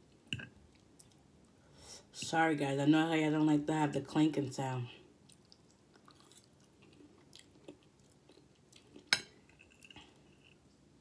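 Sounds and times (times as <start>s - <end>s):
quiet chewing: 0.1s - 1.6s, 5.2s - 10.8s.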